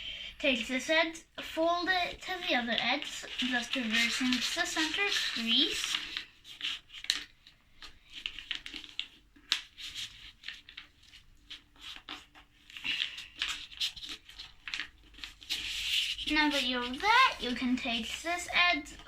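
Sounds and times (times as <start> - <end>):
paper rustling and crinkling: 1.5 - 19.0.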